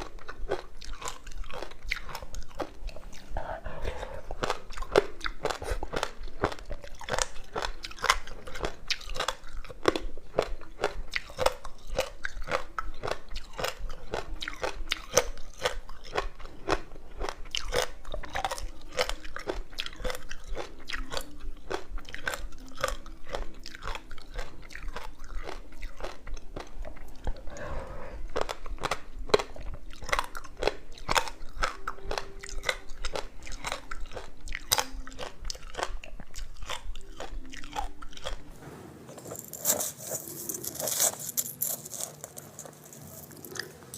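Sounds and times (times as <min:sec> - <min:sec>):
frozen ice being crunched: 0:39.3 - 0:43.5.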